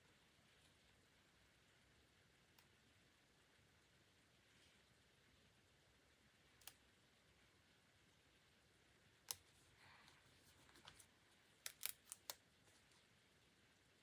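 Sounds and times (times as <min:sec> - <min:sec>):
small sharp clicks: 0:06.6 - 0:06.8, 0:11.6 - 0:12.4
soft paper rustle: 0:09.5 - 0:13.1.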